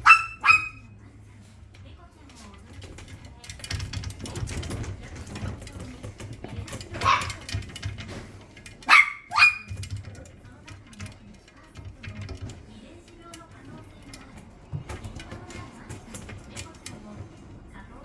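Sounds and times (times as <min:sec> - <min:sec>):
puppy yapping: 0:00.0 - 0:00.9, 0:07.0 - 0:07.5, 0:08.8 - 0:09.9.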